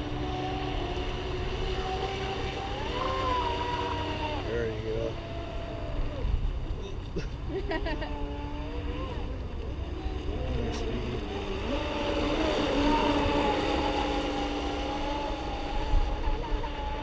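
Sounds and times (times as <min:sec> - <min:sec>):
electric boat motors whining: 0:00.0 - 0:17.0.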